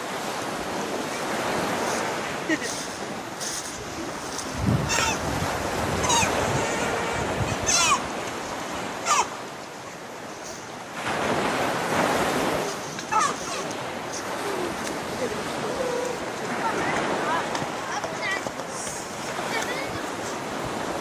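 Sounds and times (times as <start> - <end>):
waterfall rushing: 0.0 - 21.0
short falling calls: 3.4 - 9.5, 12.6 - 16.3.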